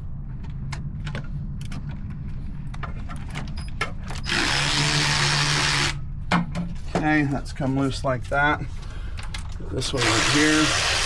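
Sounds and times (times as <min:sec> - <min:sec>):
power tool running: 0:04.3 - 0:06.0, 0:09.9 - 0:11.0.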